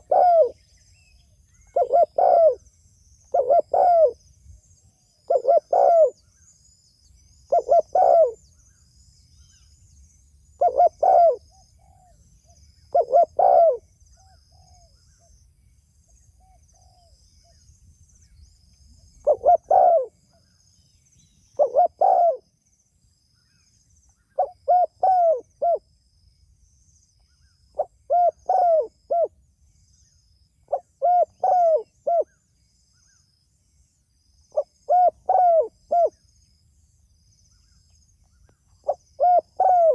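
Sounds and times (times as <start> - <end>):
dove cooing: 0.0 - 0.6, 1.7 - 2.6, 3.3 - 4.2, 5.3 - 6.2, 7.5 - 8.4, 10.6 - 12.2, 12.9 - 13.8, 19.2 - 20.2, 21.6 - 22.4, 24.4 - 25.8, 27.8 - 29.3, 30.7 - 32.3, 34.6 - 36.2, 38.8 - 39.9
faint small bird chirps: 0.0 - 39.9.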